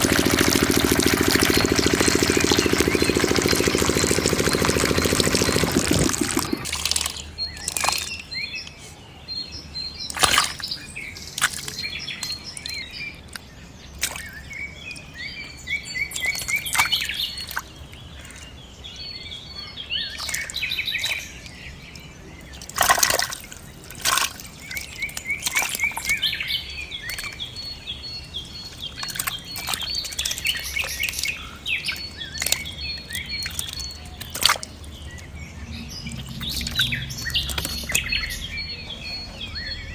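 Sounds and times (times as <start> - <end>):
small diesel engine cutting out: 0.0 - 6.7
birds chirping: 0.0 - 39.9.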